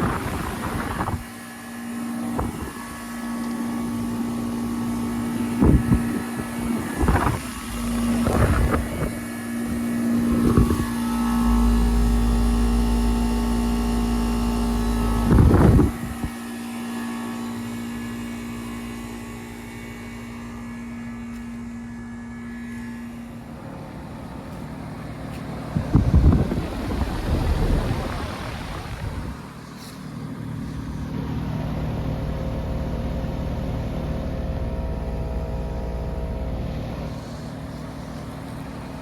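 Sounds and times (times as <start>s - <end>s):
wind buffeting microphone: 0.0s - 1.3s, 5.1s - 11.0s, 15.0s - 16.4s, 25.7s - 29.6s
fan noise: 0.0s - 39.0s
heat pump compressor hum: 0.0s - 39.0s.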